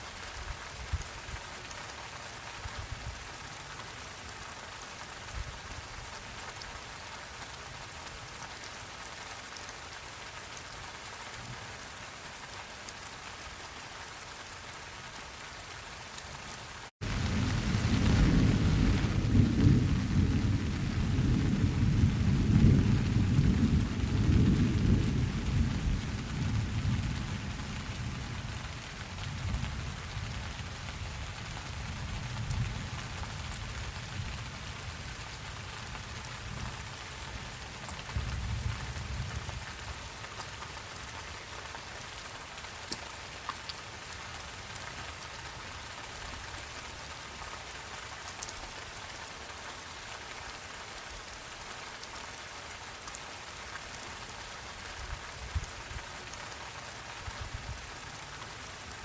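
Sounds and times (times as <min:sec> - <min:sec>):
rain falling: 0:00.0 - 0:59.0
thunder rumbling: 0:17.0 - 0:30.3.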